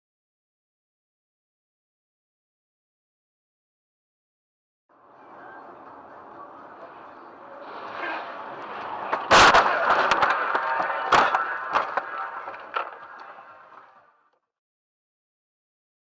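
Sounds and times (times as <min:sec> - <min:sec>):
car driving noise: 0:04.9 - 0:14.2
loud car crash: 0:05.3 - 0:13.9.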